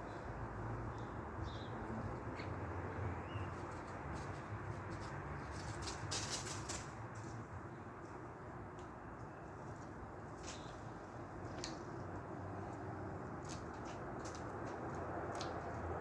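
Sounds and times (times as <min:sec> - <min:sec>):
small birds chirping: 0:00.0 - 0:04.6, 0:07.6 - 0:12.8
brief rustle: 0:03.5 - 0:07.4.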